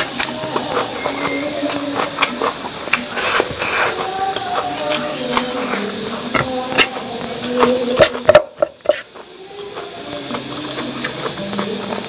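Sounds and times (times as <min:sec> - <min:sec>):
chewing and mouth sounds: 0:00.0 - 0:05.6, 0:08.9 - 0:12.0.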